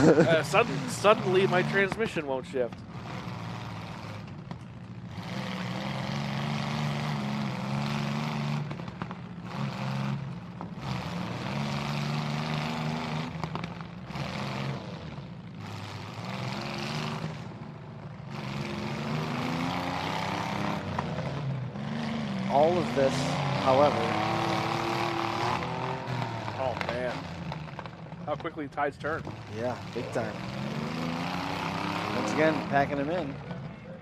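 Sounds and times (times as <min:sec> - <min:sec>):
truck engines revving hard: 0:00.0 - 0:34.0.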